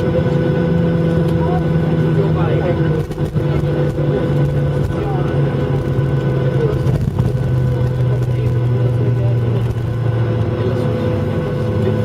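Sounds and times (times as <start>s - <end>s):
jet engines idling: 0.0s - 12.0s.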